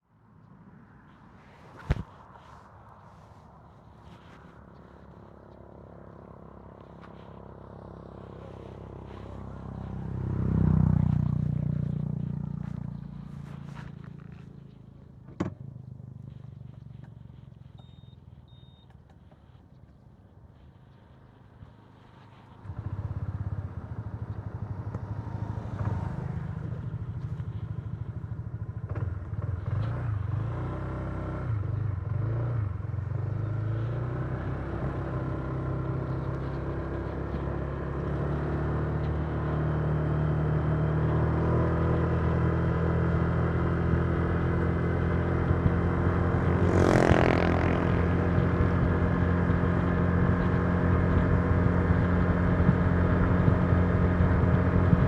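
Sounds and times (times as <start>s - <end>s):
scooter engine running: 6.4s - 14.8s, 21.9s - 30.5s, 34.4s - 55.0s.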